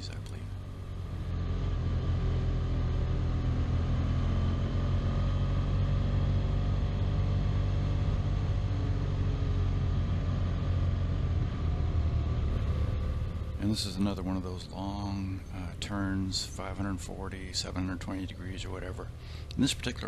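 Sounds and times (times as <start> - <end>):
motorcycle engine cruising: 0.0 - 20.0
road and wind noise: 0.0 - 20.0.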